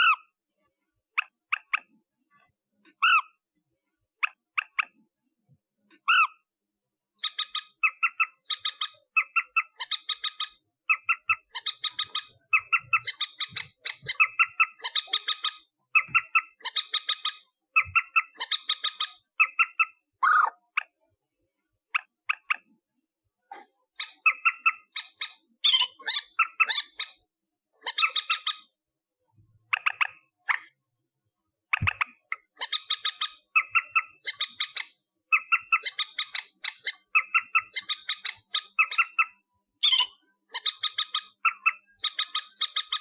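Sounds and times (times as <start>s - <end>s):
harsh pulsed bird calls: 7.2s - 20.7s, 24.0s - 28.8s, 31.7s - 43.0s.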